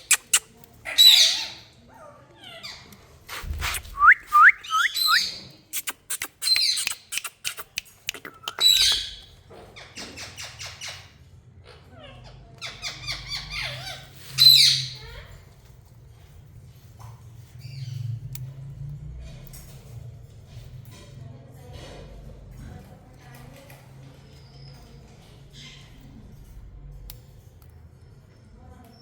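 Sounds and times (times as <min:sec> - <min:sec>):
sharp clicks: 0:00.0 - 0:00.6, 0:03.6 - 0:09.2
parakeet squawking: 0:00.0 - 0:01.6, 0:03.8 - 0:09.2
short rising whistles: 0:03.5 - 0:07.4.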